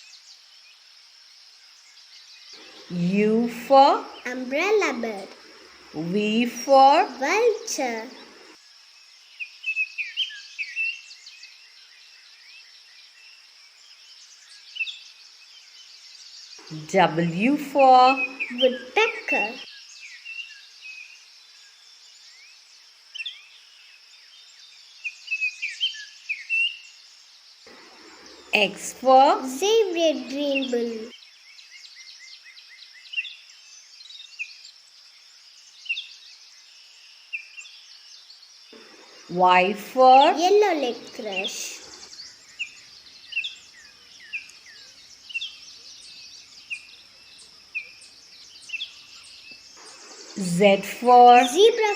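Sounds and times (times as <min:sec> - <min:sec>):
small birds chirping: 0:00.0 - 0:51.9
high insect-like hiss: 0:03.9 - 0:16.8, 0:40.2 - 0:51.9.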